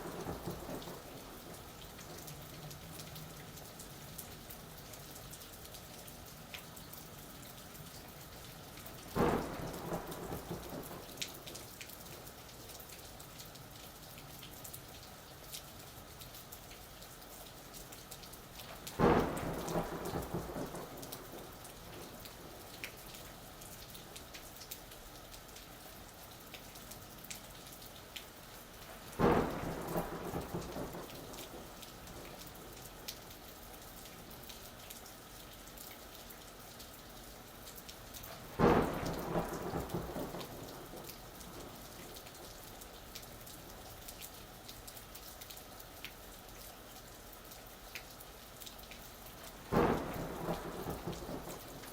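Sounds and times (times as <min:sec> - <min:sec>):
sharp crackling thunderclaps: 0:00.0 - 0:02.3, 0:09.2 - 0:11.7, 0:18.9 - 0:22.9, 0:29.1 - 0:32.8, 0:38.4 - 0:42.6, 0:49.6 - 0:51.9
steady rain: 0:00.0 - 0:51.9.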